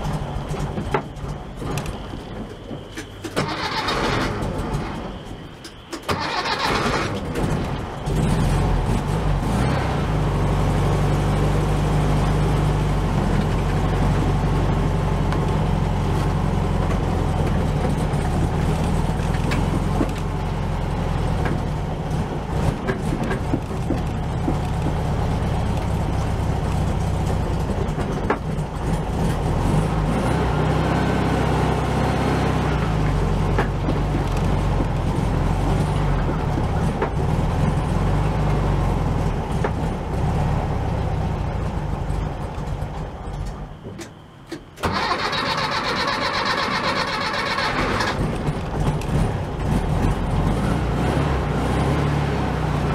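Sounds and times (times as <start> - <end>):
car engine running: 0.0 - 43.9, 44.8 - 52.9.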